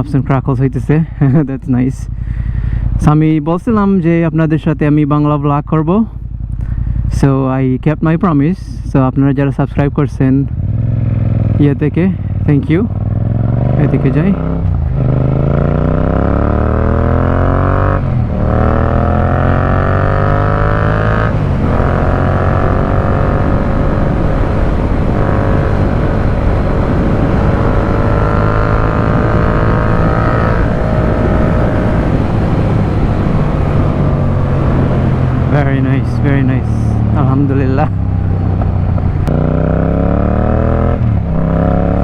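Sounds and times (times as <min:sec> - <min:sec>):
motorcycle engine accelerating: 0:10.2 - 0:42.0.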